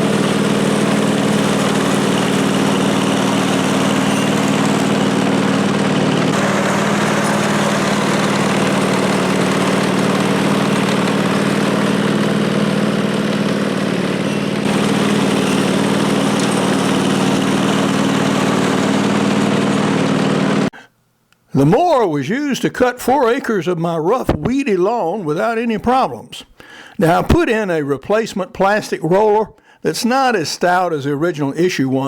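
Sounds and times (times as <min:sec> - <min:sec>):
riding lawnmower engine running: 0:00.0 - 0:20.8.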